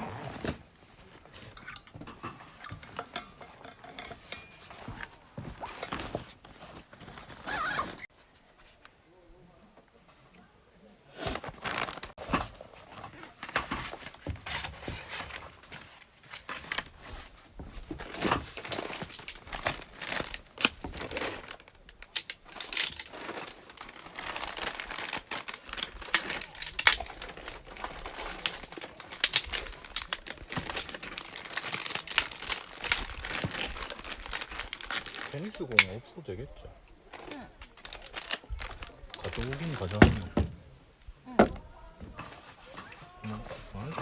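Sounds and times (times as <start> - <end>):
packaging crinkling: 11.5 - 12.2, 18.0 - 36.0, 37.1 - 40.5.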